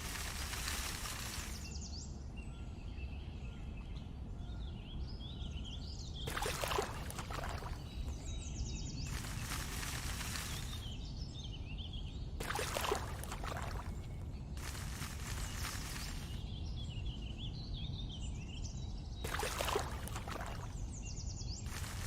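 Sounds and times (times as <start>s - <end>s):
rustling noise: 0.0s - 1.7s, 9.1s - 11.0s, 12.4s - 16.4s, 21.7s - 22.0s
small birds chirping: 0.0s - 22.0s.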